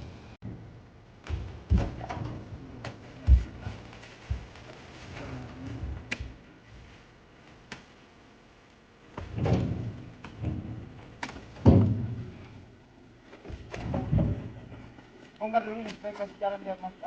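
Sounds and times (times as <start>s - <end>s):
heavy thuds in truck bed: 9.2s - 11.0s, 11.6s - 12.5s.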